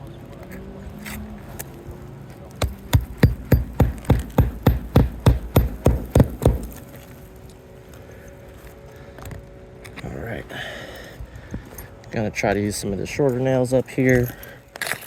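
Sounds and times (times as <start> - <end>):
hammer driving nails into shingle: 2.6 - 6.8.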